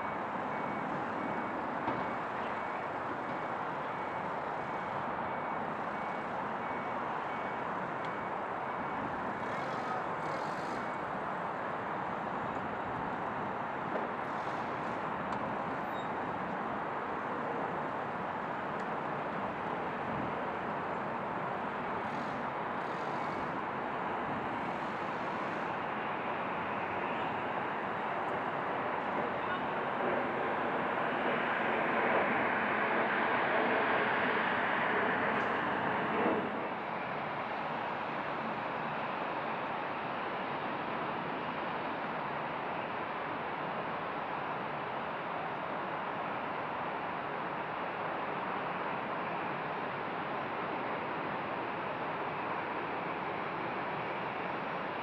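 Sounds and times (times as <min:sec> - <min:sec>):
jet engines running: 0:05.7 - 0:39.8.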